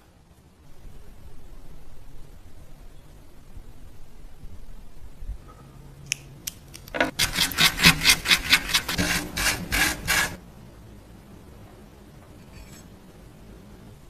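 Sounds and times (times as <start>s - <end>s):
rasping on metal: 7.0s - 10.4s.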